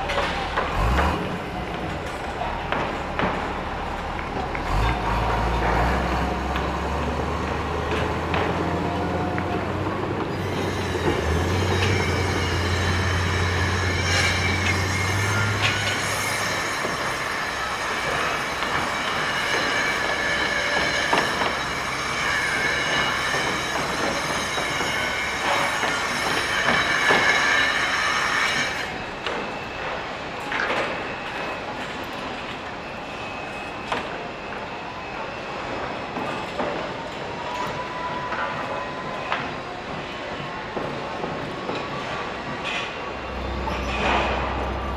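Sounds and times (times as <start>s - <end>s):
metal-on-metal squealing: 3.4s - 30.0s, 42.7s - 44.9s.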